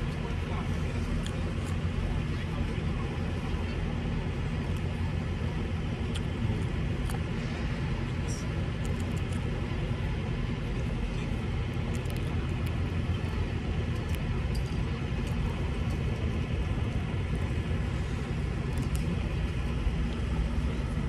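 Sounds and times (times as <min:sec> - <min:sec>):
road noise: 0:00.0 - 0:21.0
truck engine running: 0:00.0 - 0:21.0.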